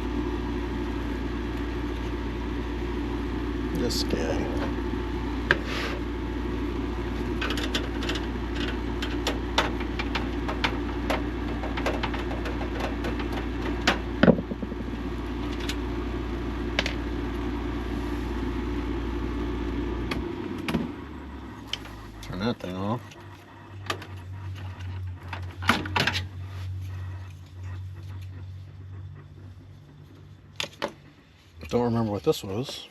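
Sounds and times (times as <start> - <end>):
machine hum: 0.0 - 32.9
clicks and knocks of handling: 7.4 - 14.7.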